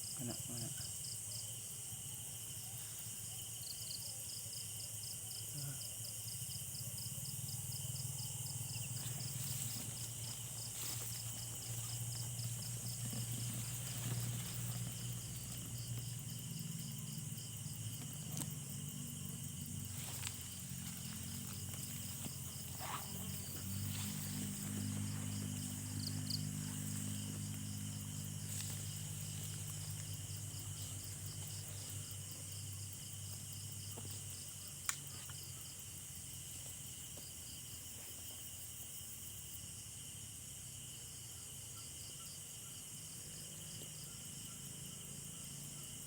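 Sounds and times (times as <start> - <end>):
fast pulsing insect trill: 0.0 - 34.8
crickets and insects chirring: 0.0 - 46.0.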